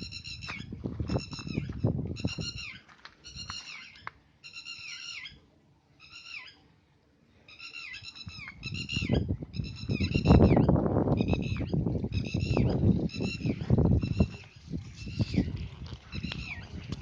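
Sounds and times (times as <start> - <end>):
bird calling: 0.0 - 6.7, 7.5 - 15.5, 16.1 - 17.0
rough crackling rumble: 10.7 - 17.0.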